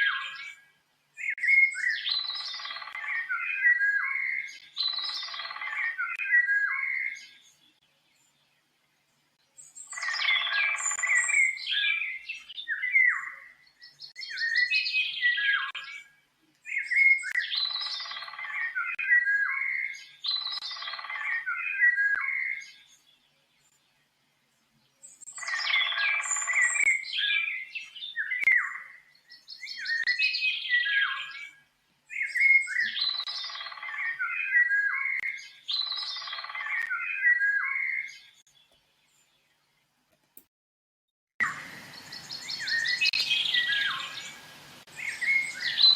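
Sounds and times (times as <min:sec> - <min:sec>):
songbird warbling: 0:01.2 - 0:07.4, 0:09.6 - 0:16.1, 0:16.7 - 0:22.8, 0:25.2 - 0:31.5, 0:32.1 - 0:38.3, 0:41.4 - 0:45.9.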